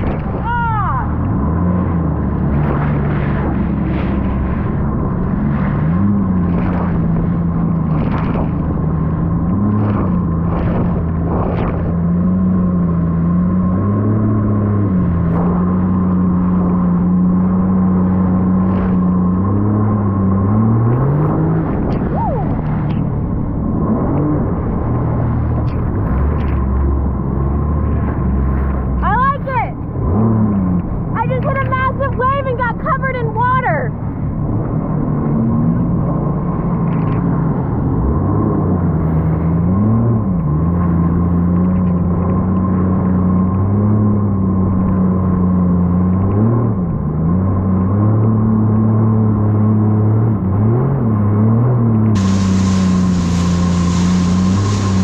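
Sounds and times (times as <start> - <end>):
jet ski engine running: 0.0 - 55.0
short rushes of noise: 52.1 - 55.0.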